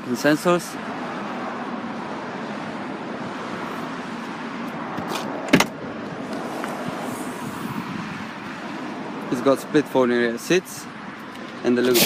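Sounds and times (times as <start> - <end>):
outdoor background noise: 0.0 - 12.0
tailgate thump: 5.5 - 5.8.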